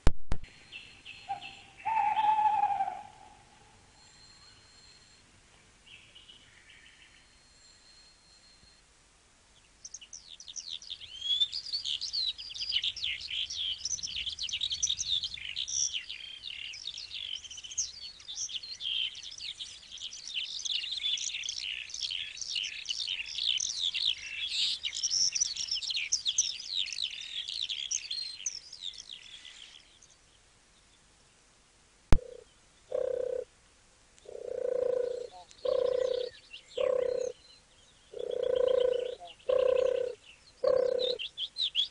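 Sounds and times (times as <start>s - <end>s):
flock of small birds chirping: 9.6s - 31.0s, 34.3s - 41.9s.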